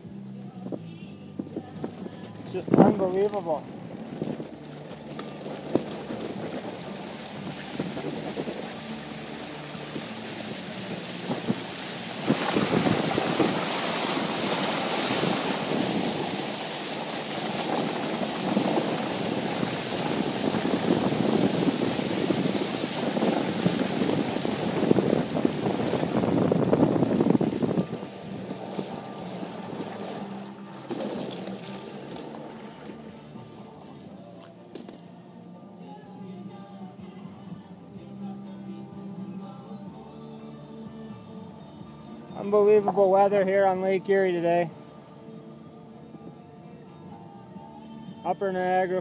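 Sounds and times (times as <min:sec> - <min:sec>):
vehicle engine running: 0:00.0 - 0:34.1
wind buffeting microphone: 0:00.6 - 0:34.1
waves breaking against wall: 0:01.8 - 0:33.1.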